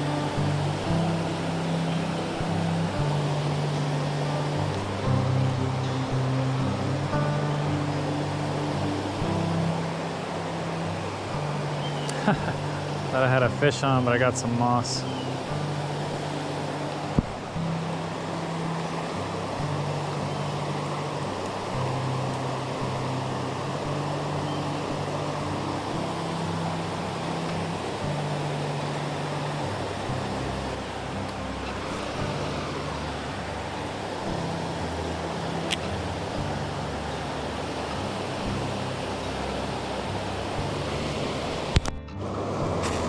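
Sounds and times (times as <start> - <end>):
creek water rushing: 0.0 - 43.0.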